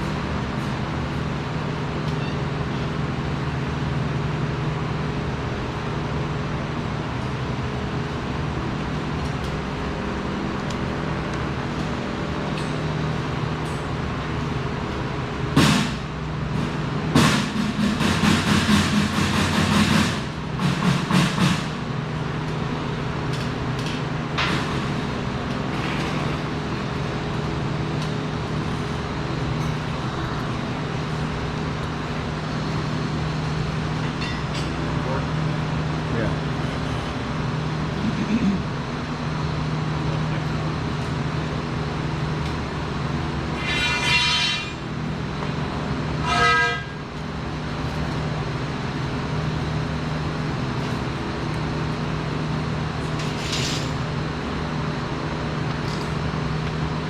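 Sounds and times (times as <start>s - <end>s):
loud metalworking noise: 0.0s - 57.0s
workshop machinery humming: 0.0s - 57.0s
sharp metallic hit: 43.5s - 44.9s.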